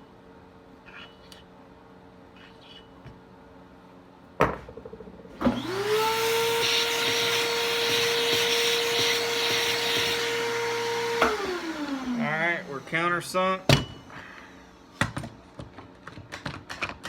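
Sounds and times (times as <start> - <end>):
electric drill whining: 5.4 - 14.8.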